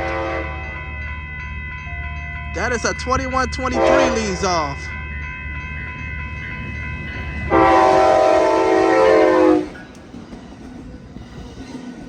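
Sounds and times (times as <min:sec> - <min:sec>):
locomotive horn blast: 0:00.0 - 0:00.8, 0:03.6 - 0:04.4, 0:07.5 - 0:09.8
passenger train passing: 0:00.0 - 0:12.0.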